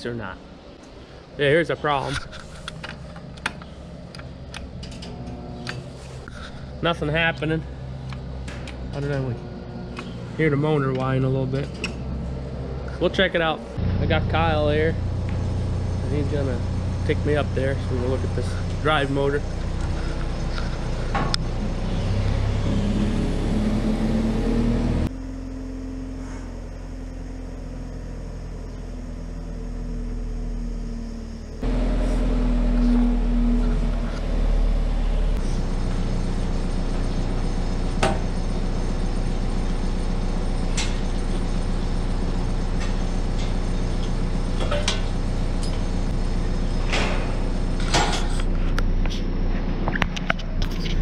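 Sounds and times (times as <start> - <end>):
engine whine: 0.0 - 51.0
machine engine running: 0.0 - 51.0.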